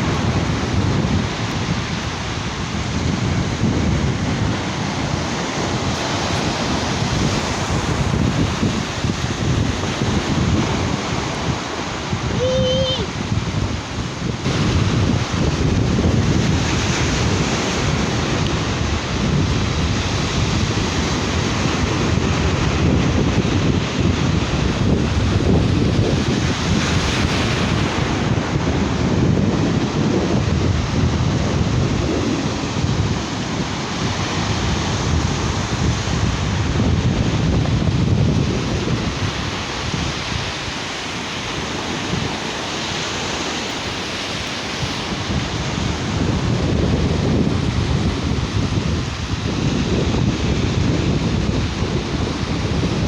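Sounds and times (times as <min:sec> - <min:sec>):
sea surf washing onto a beach: 0:00.0 - 0:53.0
wind buffeting the microphone: 0:00.0 - 0:53.0.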